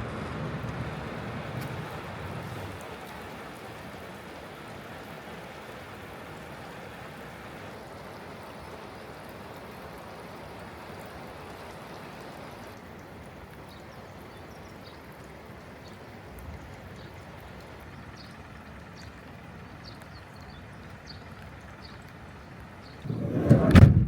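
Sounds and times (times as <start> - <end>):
heavy rain falling: 0.0 - 14.4.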